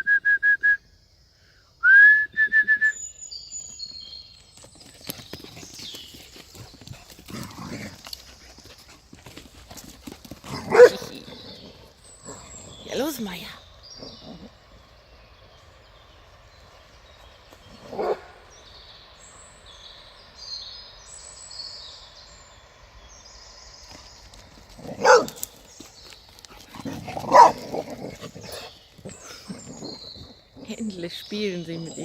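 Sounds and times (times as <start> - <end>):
dog barking: 10.5 - 11.1, 17.9 - 18.4, 24.9 - 25.4, 27.2 - 27.7.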